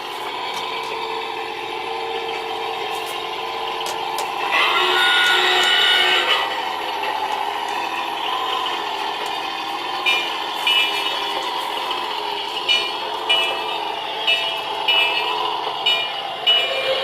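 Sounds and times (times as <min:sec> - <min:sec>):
diesel engine hum: 0:00.0 - 0:17.0
train chord horn: 0:04.4 - 0:06.9.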